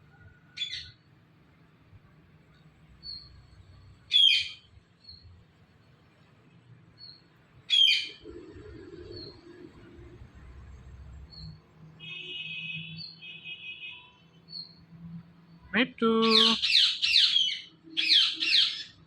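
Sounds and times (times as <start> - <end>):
parakeet harsh calls: 4.1 - 4.7, 7.7 - 8.2, 16.2 - 19.0.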